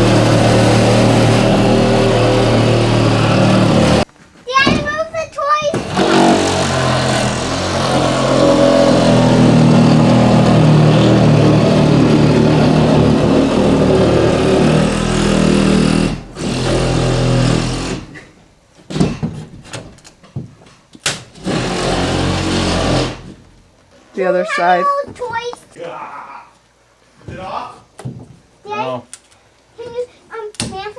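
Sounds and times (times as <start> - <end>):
power saw cutting into wall: 0.0 - 4.1, 5.7 - 18.3, 21.1 - 23.5.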